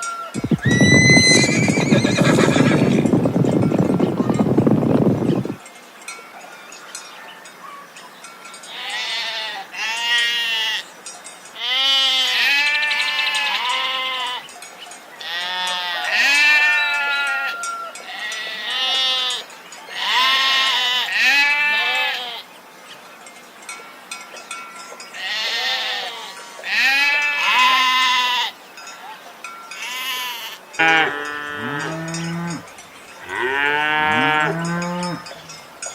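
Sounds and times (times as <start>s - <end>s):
animals bleating: 0.5s - 3.2s, 8.7s - 10.9s, 11.6s - 14.4s, 15.2s - 22.5s, 25.2s - 28.6s, 29.8s - 35.5s.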